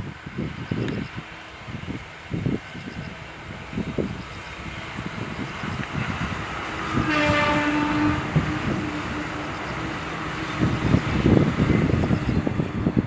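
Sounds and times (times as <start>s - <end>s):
train rumbling past: 0.0s - 13.0s
train horn held tone: 5.1s - 12.6s.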